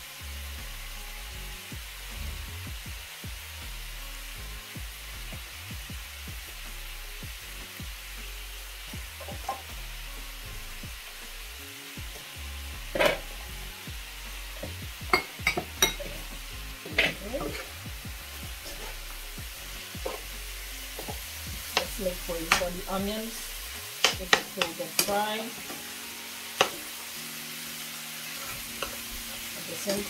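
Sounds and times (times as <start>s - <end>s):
chicken and onions sizzling in pan: 0.0s - 30.0s
utensils clinking: 15.1s - 16.2s.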